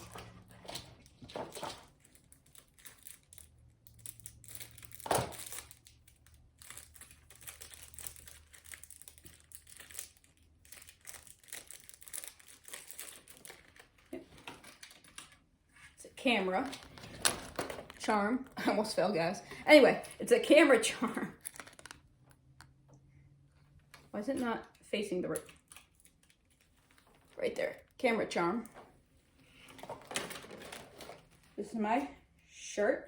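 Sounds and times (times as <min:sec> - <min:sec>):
packaging crinkling: 0:01.0 - 0:15.4, 0:21.3 - 0:22.4, 0:25.5 - 0:27.9.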